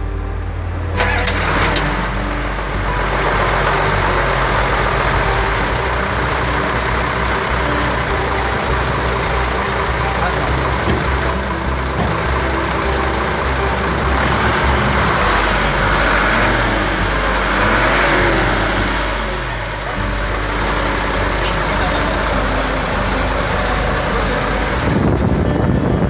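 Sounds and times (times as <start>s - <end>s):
diesel truck engine revving: 0.0s - 26.0s.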